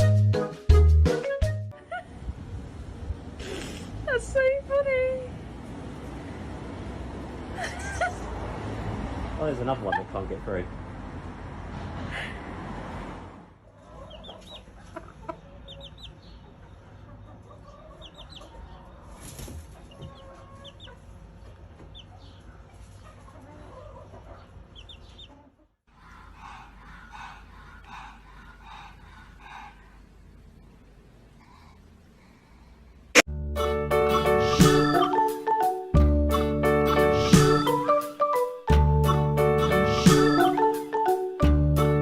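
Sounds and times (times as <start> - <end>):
low background hum: 26.1 - 33.2.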